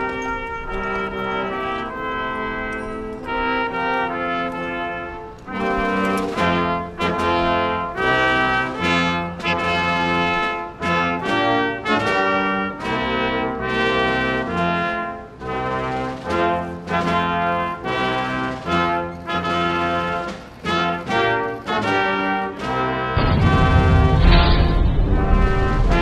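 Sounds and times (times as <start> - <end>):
brass instruments holding notes: 0.0 - 26.0
deep bass notes: 23.2 - 26.0.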